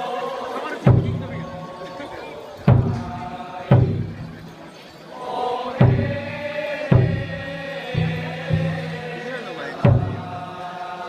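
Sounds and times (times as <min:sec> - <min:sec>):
voices chanting: 0:00.0 - 0:11.0
sharp heavy beats: 0:00.9 - 0:04.6, 0:05.7 - 0:09.2, 0:09.8 - 0:10.5.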